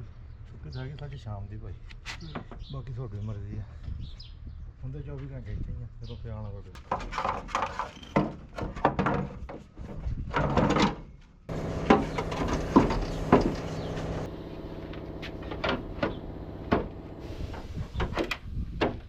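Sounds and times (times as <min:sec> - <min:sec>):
steady mechanical hum: 0:11.5 - 0:18.2
sharp knocks and clatter: 0:11.6 - 0:14.3.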